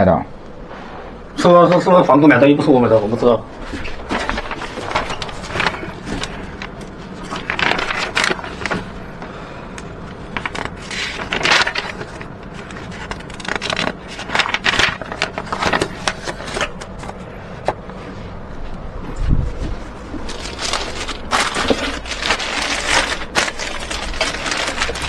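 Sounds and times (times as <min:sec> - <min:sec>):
scraping and clattering of parts: 0:19.6 - 0:25.0.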